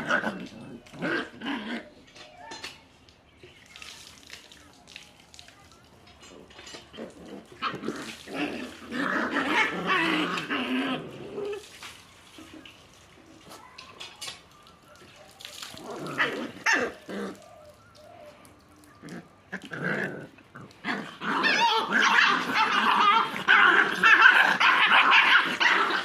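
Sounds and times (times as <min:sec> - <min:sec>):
puppies growling and yipping: 0:00.0 - 0:02.7, 0:06.2 - 0:12.8, 0:15.1 - 0:26.0.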